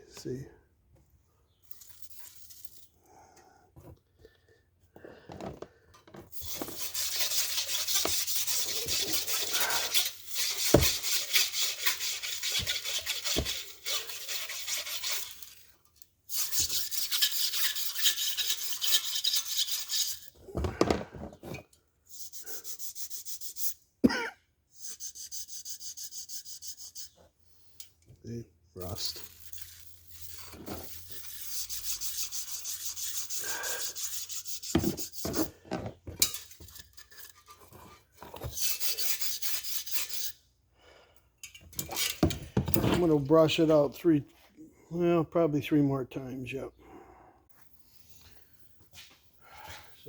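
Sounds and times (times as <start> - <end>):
stiff brush scrubbing metal: 6.3 - 20.4, 28.8 - 35.6, 36.2 - 40.4, 42.9 - 44.0.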